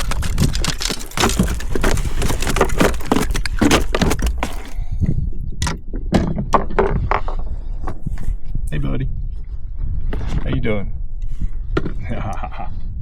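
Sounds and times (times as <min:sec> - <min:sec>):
fishing tackle rattling: 0:00.0 - 0:04.8.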